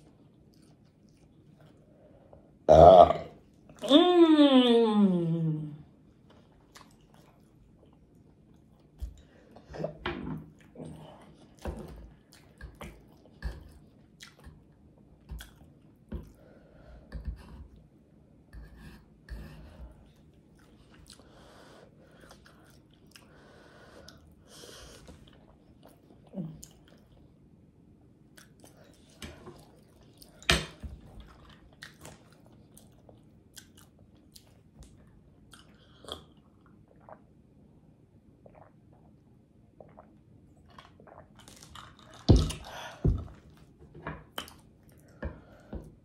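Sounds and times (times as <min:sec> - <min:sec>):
wet chewing and lip smacking: 0:00.0 - 0:01.8, 0:06.2 - 0:09.3, 0:10.6 - 0:16.4, 0:22.1 - 0:23.3, 0:28.3 - 0:30.4, 0:31.1 - 0:37.2.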